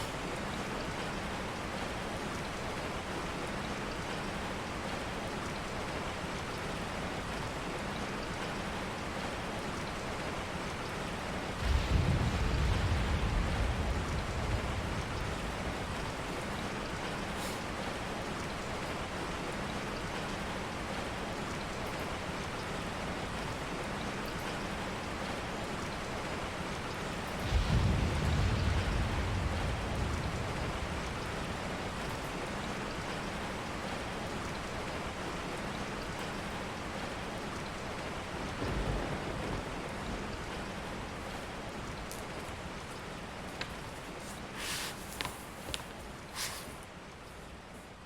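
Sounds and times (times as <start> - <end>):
steady rain: 0.0 - 48.0
thunder rumbling: 11.5 - 17.3, 27.2 - 33.2, 38.3 - 41.3.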